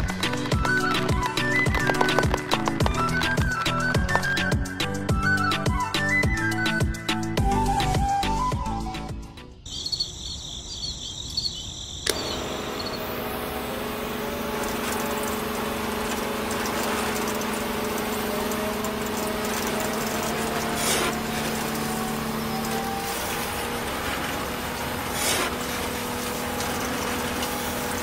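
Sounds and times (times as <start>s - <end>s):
electric motor humming: 12.1s - 28.0s.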